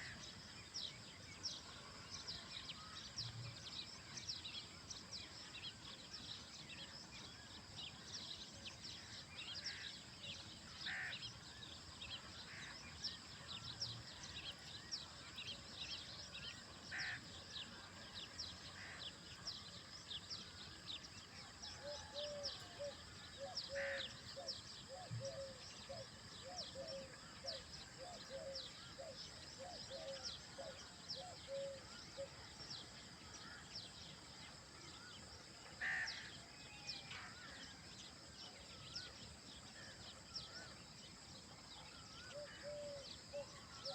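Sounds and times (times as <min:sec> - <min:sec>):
birds chirping: 0:41.9 - 0:43.9.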